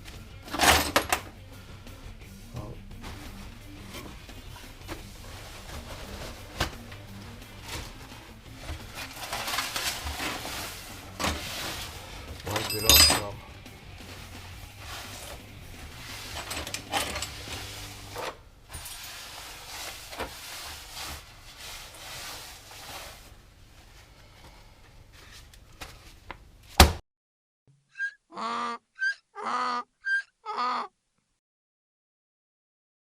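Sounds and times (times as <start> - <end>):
tools and parts clattering: 0.4 - 1.4, 7.6 - 13.5, 14.8 - 20.4.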